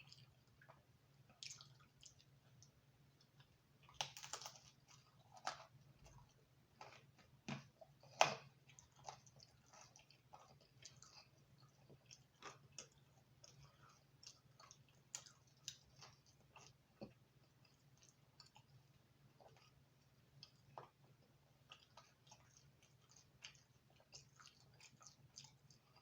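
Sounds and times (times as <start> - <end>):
mouth clicks and chewing: 0.0 - 7.1, 7.9 - 19.8, 20.4 - 26.0
faint steady hum: 0.0 - 26.0
crunchy pizza bites: 3.3 - 18.7.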